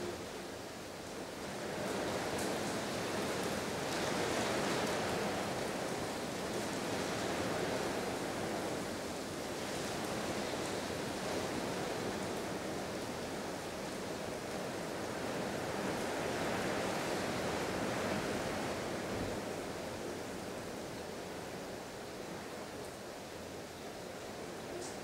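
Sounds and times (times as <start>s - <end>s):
heavy rain: 0.0s - 25.0s
wind: 0.0s - 25.0s.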